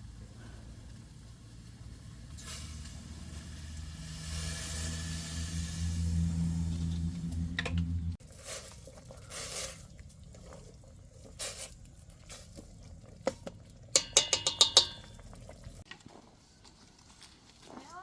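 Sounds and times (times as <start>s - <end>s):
dishes and utensils clinking: 14.0s - 15.4s.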